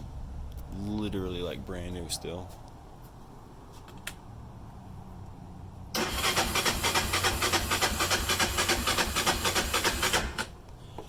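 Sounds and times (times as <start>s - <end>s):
engine cranking on starter: 6.0s - 10.6s.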